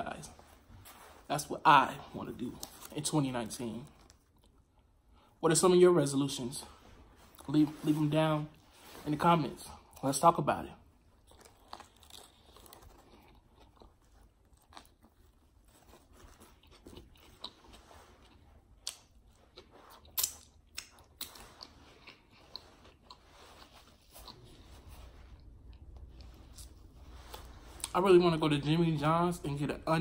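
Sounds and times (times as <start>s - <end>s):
small crunches of chewing: 11.2s - 28.0s
wet mouth smacks while chewing: 18.8s - 23.2s.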